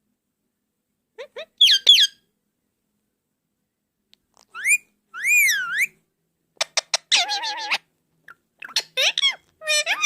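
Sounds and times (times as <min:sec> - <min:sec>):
parakeet whistling: 0:01.3 - 0:02.2, 0:04.5 - 0:06.0.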